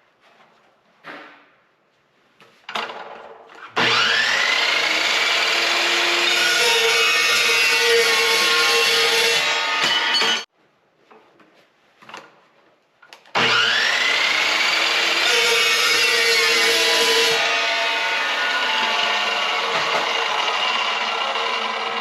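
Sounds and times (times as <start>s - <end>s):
chop saw cutting metal: 3.6s - 10.5s, 13.3s - 22.0s.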